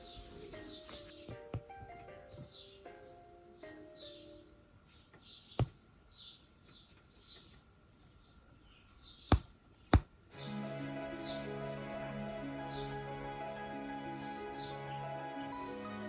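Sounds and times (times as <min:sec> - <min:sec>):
soft background music: 0:00.0 - 0:04.9, 0:10.3 - 0:16.0.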